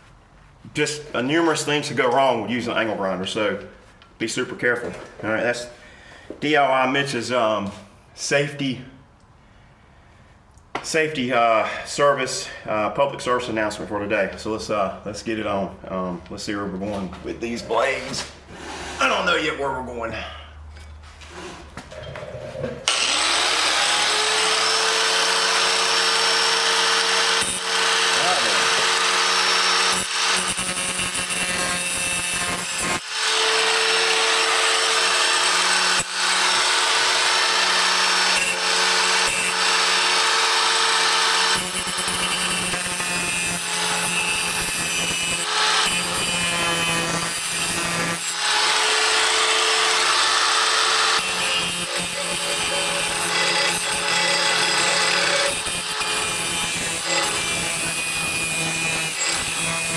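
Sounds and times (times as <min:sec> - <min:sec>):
angle grinder on steel blade: 0:22.9 - 0:59.9.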